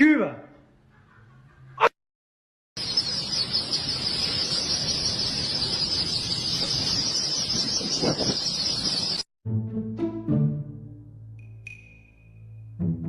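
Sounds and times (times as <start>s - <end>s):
high-pitched insect chorus: 2.8s - 9.2s.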